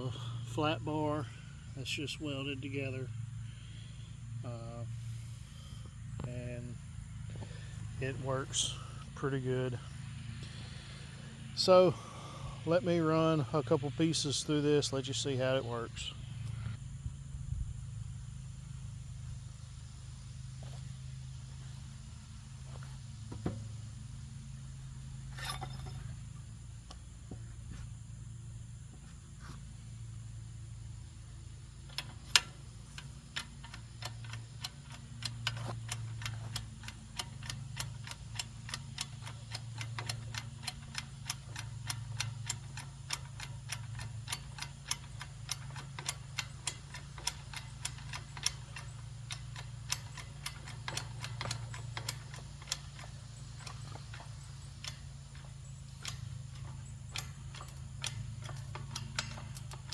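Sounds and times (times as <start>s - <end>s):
low hum: 0.0s - 38.2s
hydraulic jack pump clicking: 31.3s - 59.9s.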